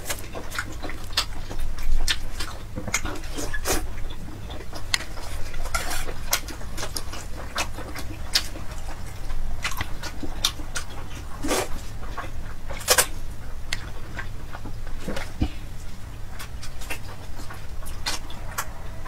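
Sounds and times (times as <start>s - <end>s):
chewing noodles: 0.0s - 19.0s.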